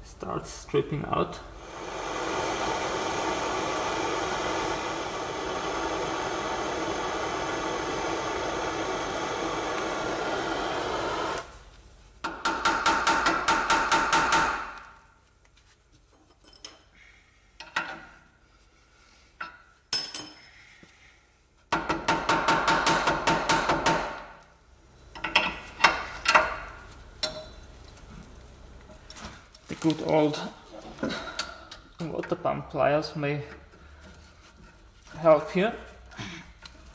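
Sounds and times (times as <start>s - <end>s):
impact wrench hammering: 12.2s - 14.8s, 21.7s - 24.4s
metal clinks and knocks: 16.1s - 16.9s, 19.9s - 20.5s.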